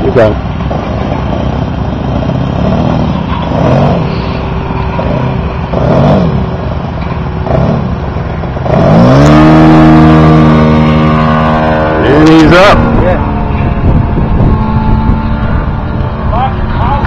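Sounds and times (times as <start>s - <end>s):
model plane engine: 9.4s - 17.0s.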